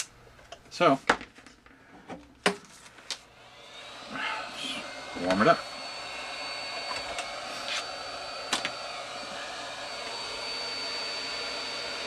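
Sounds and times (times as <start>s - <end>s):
hot air gun blowing with whine: 3.4s - 12.0s.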